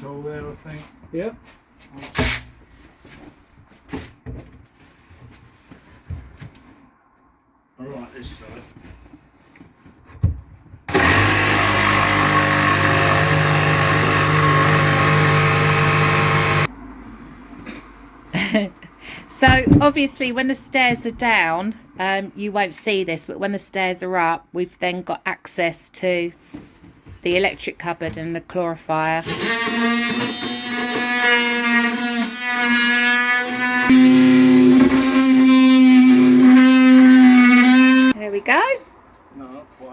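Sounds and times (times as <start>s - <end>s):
power tool cutting panel: 10.9s - 16.7s, 29.2s - 38.2s.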